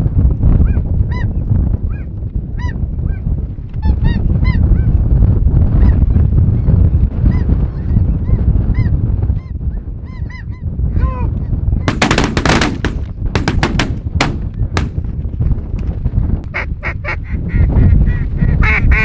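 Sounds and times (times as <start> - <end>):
wind buffeting microphone: 0.0 - 19.0
shotgun shots: 11.9 - 15.2.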